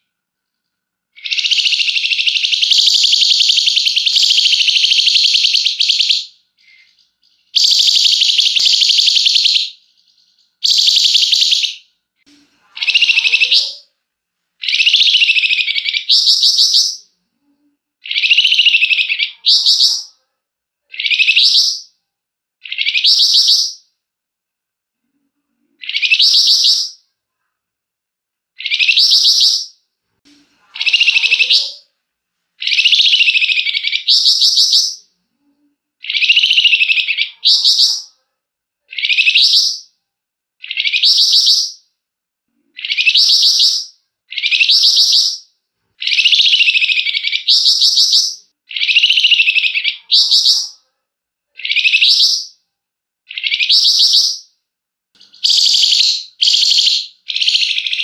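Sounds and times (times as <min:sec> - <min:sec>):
bird harsh rattling call: 0:55.3 - 0:58.0.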